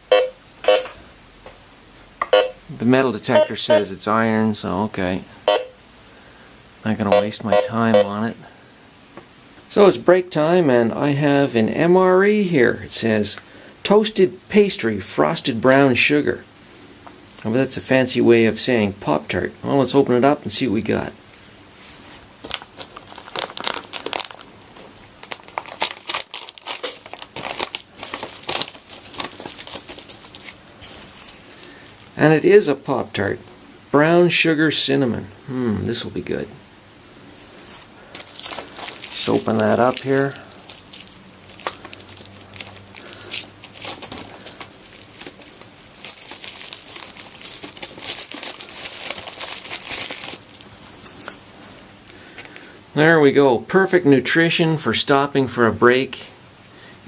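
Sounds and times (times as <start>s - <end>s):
plastic pouch crinkling and tearing: 22.4s - 32.2s, 37.7s - 52.7s.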